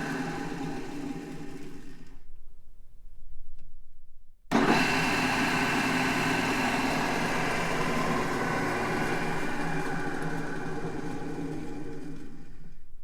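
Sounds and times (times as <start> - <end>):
drill press humming: 4.5 - 12.8.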